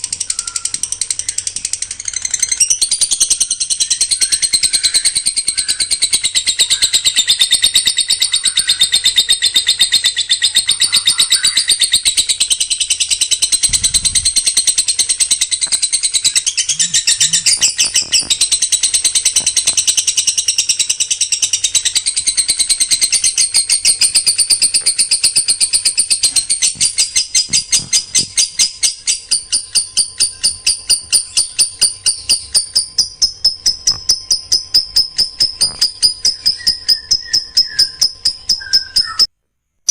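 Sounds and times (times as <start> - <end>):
songbird singing: 0.0 - 39.3.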